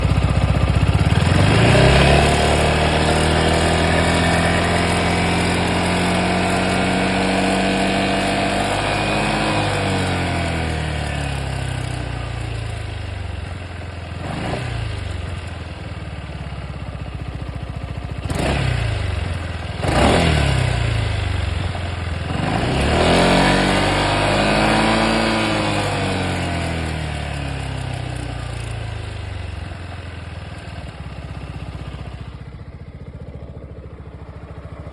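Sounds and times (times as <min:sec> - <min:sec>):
scooter engine revving: 0:00.0 - 0:34.9
odd motor noise: 0:00.9 - 0:12.3.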